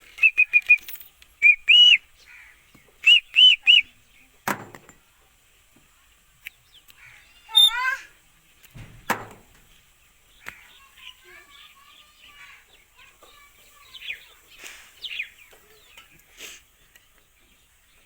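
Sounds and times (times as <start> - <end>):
parrot whistled calls: 1.4 - 2.0, 3.0 - 3.9, 7.5 - 8.0.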